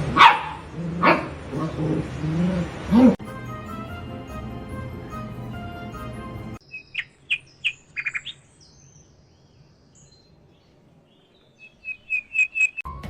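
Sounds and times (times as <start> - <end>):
bird chirping: 6.6 - 12.9.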